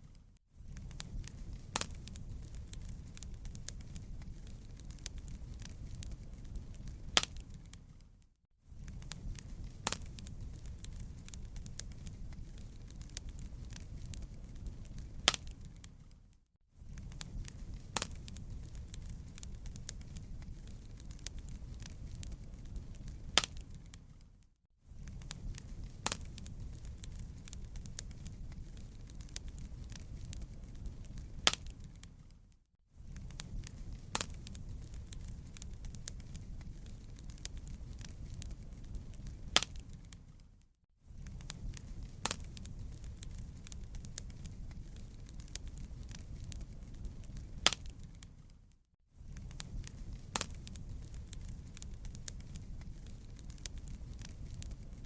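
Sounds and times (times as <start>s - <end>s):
fireplace crackling: 0.0s - 55.0s.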